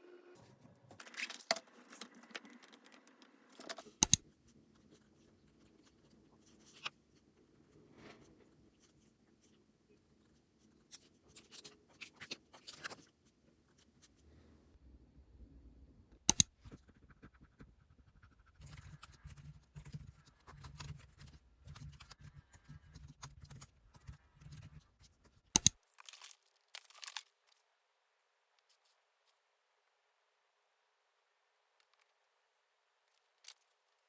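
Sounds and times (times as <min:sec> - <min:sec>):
rustling and crinkling: 0:16.6 - 0:27.7.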